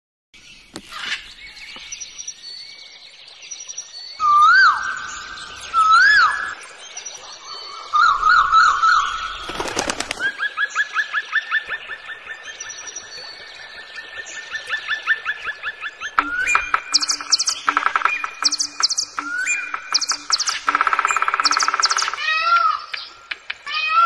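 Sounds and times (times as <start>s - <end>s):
whistled bird notes: 3.5s - 11.8s, 14.2s - 23.2s
warbling bird notes: 14.5s - 23.6s.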